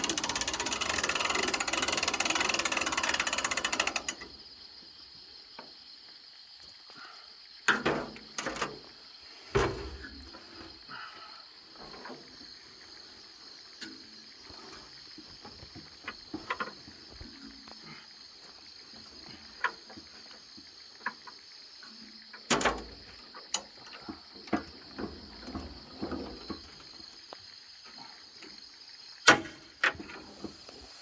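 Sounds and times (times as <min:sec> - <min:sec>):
night insects chorus: 0:00.0 - 0:31.0.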